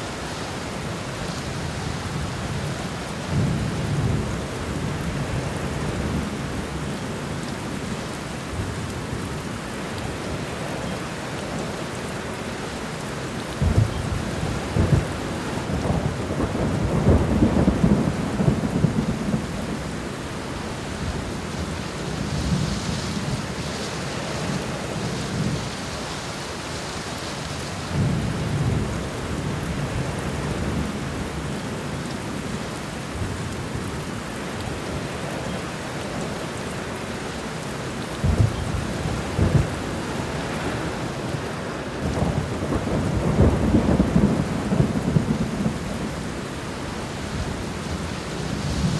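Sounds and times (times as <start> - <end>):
steady rain: 0.0 - 48.9
thunder rumbling: 13.6 - 20.1, 38.2 - 48.9.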